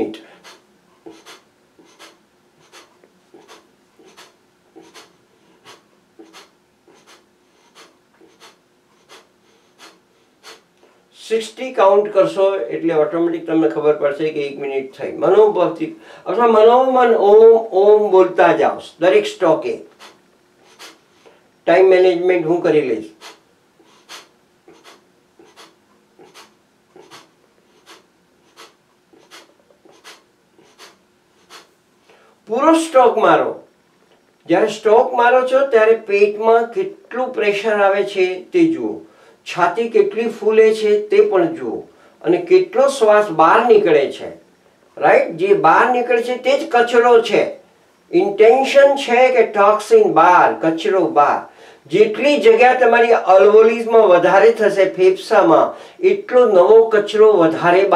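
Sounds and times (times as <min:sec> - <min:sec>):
forceful nasal exhalations: 0:00.2 - 0:11.1, 0:19.9 - 0:21.5, 0:23.1 - 0:32.4.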